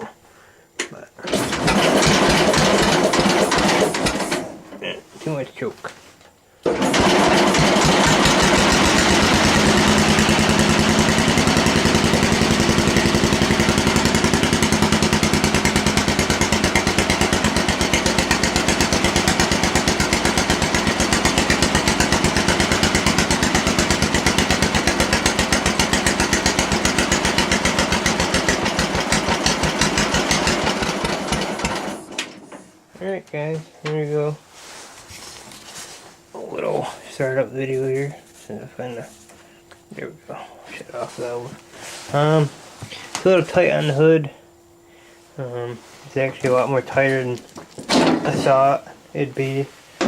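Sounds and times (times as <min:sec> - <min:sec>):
unmuffled tractor engine running: 0:01.3 - 0:04.8, 0:06.7 - 0:32.8.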